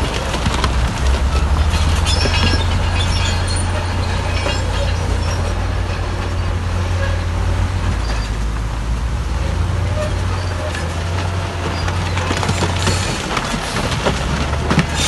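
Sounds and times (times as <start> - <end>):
diesel engine droning: 0.0 - 15.0
steel tracks clanking and squealing: 0.0 - 15.0.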